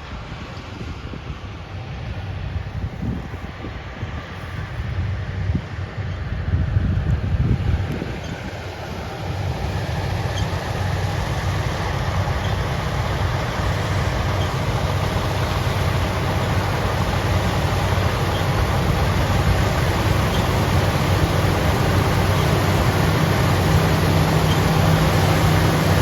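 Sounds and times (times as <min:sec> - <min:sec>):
harvesting machinery engine drone: 0:00.0 - 0:26.0.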